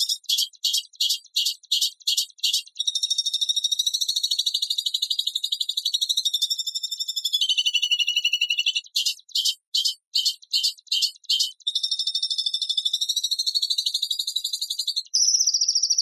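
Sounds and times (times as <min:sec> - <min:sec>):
bird harsh high trill: 0:07.4 - 0:08.8.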